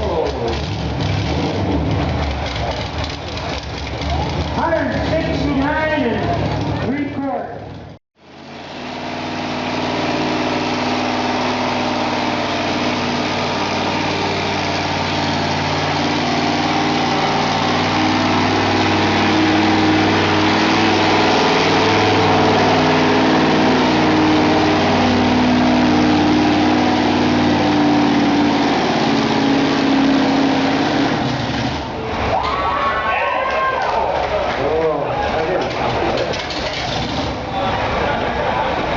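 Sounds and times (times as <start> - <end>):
truck engine running loud: 0.0 - 32.4, 33.9 - 38.9.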